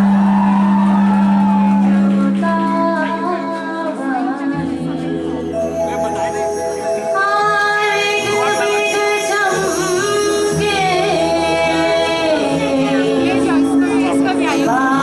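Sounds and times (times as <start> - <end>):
instrumental accompaniment: 0.0 - 15.0
woman singing: 1.8 - 5.4, 7.1 - 15.0.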